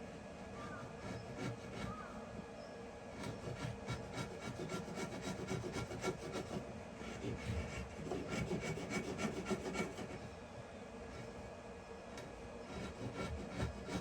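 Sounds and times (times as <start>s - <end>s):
hand tool working wood: 3.2s - 10.2s, 12.7s - 14.0s.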